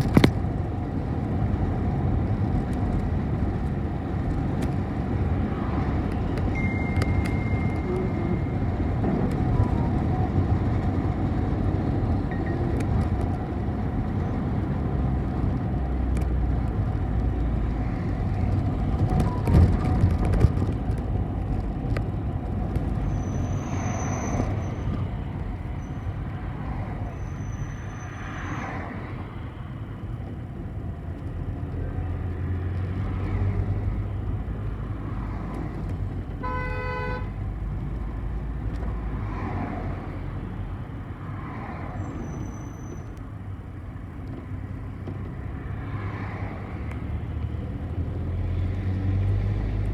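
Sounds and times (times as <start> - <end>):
bus engine and road rumble: 0.0 - 49.9
short high squeals: 23.1 - 24.9, 27.1 - 28.7, 42.0 - 43.2.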